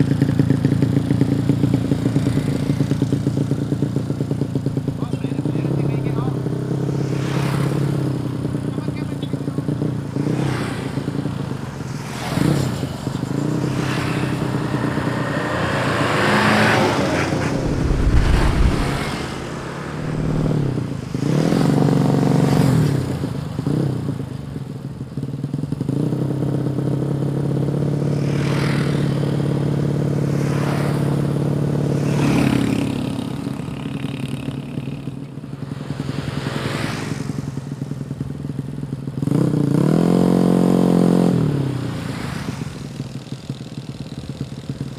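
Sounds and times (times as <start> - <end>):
motorcycle engine revving: 0.0 - 24.2.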